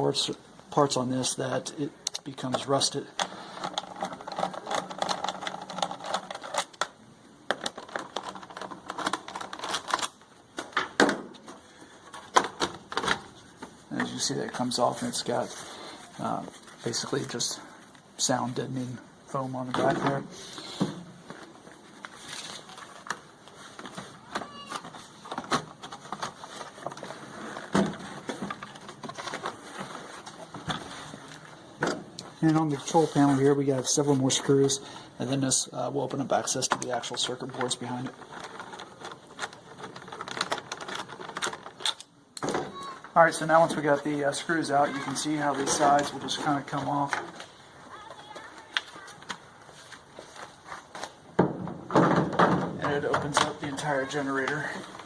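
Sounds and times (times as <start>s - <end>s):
hand tools clicking and rattling: 2.1s - 10.2s, 36.6s - 42.2s
plastic panels clicking and knocking: 2.1s - 14.1s, 23.0s - 30.8s, 36.6s - 43.8s, 51.4s - 55.0s.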